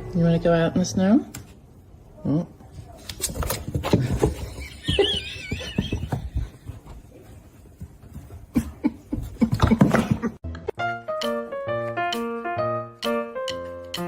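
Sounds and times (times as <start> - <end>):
knocks and rustling: 2.8 - 10.4.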